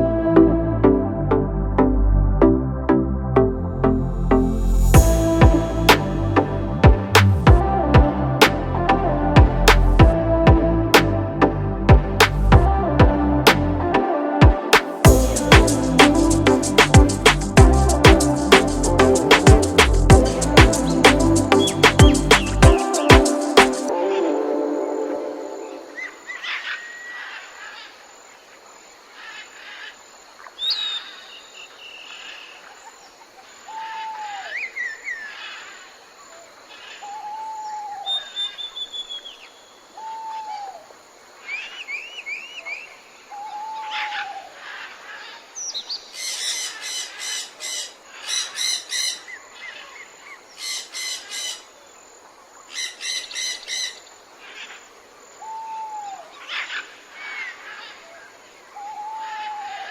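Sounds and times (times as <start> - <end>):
bird whistles and chirps: 38.0 - 39.5.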